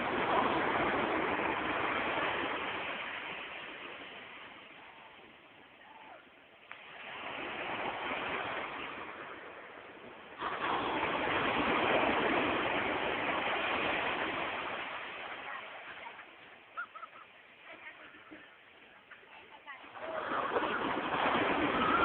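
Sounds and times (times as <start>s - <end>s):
waves breaking on a beach: 0.0s - 22.0s.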